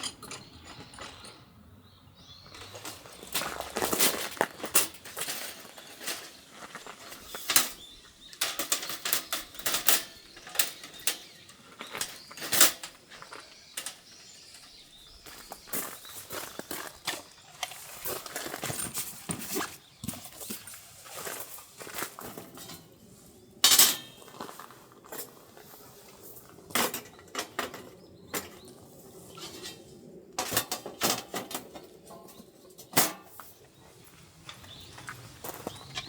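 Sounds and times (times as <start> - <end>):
objects clinking and knocking: 0.0 - 1.6, 2.5 - 14.8.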